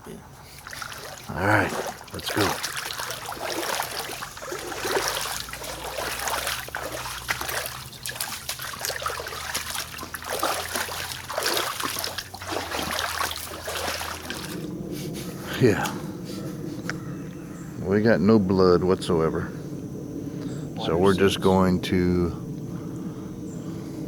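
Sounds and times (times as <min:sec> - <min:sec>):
footsteps wading through water: 0:00.2 - 0:17.0.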